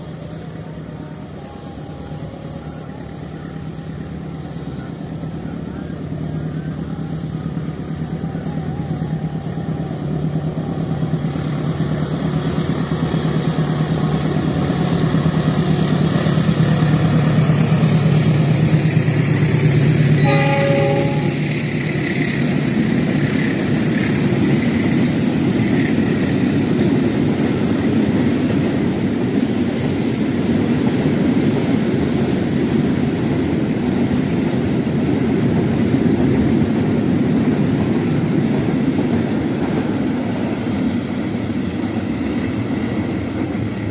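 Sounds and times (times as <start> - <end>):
locomotive engine hum: 0.0 - 29.4
train horn blast: 20.2 - 21.9.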